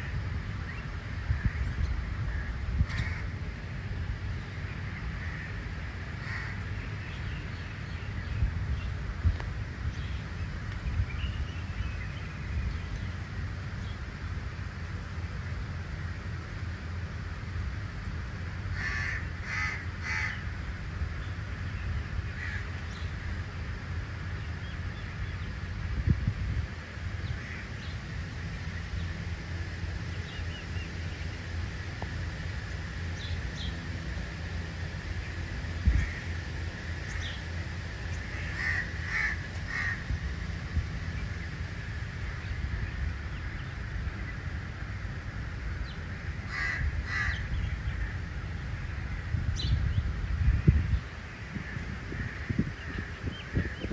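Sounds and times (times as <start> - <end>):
steady low rumble: 0.0 - 53.9
bird harsh caw-like calls: 1.3 - 3.4, 5.0 - 7.2, 18.7 - 20.6, 22.3 - 23.4, 27.2 - 27.9, 35.8 - 36.5, 38.1 - 40.2, 46.3 - 48.3, 51.4 - 53.9
bird calls: 35.1 - 40.1, 45.8 - 48.2.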